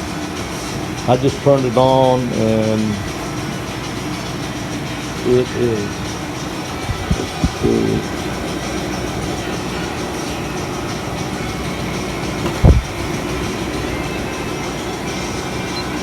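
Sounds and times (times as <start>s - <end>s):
air conditioner humming: 0.0s - 16.0s
short thump: 12.3s - 13.1s.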